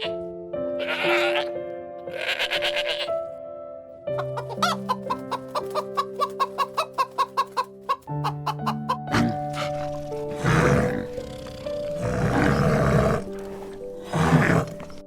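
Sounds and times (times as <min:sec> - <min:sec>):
background music with held chords: 0:00.0 - 0:15.0
chicken clucking: 0:04.1 - 0:10.1.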